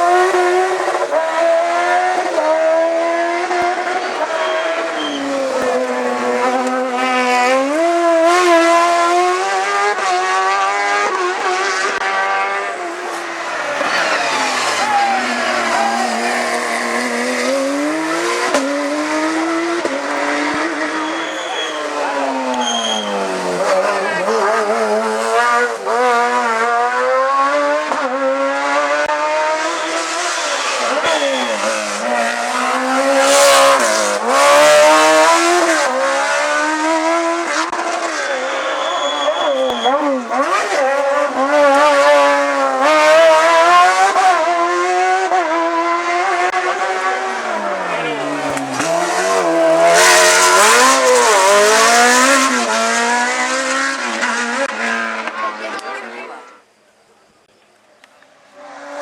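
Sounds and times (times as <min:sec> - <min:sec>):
race car engine at full throttle: 0:00.0 - 0:56.7.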